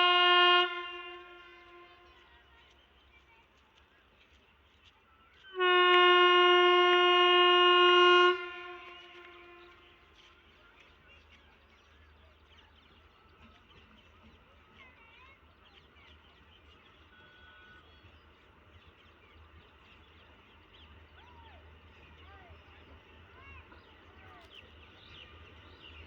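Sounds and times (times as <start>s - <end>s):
train horn blast: 0.0s - 2.3s, 5.5s - 10.2s.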